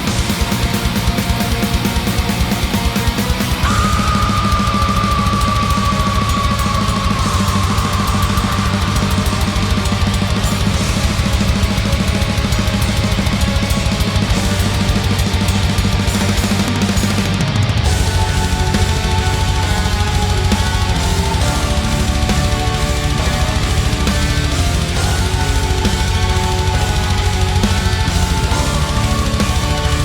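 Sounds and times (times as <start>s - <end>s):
fast dense drumming: 0.0s - 30.0s
heavy distorted guitars: 0.0s - 30.0s
long high held note sliding down: 3.6s - 11.6s.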